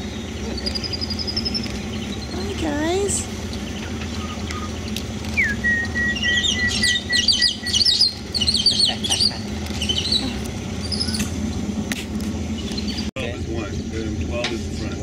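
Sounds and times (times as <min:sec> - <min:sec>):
high bird chirps: 0:00.0 - 0:11.7, 0:12.5 - 0:13.1
steady low hum: 0:00.0 - 0:15.0
bird long whistle: 0:03.6 - 0:11.3.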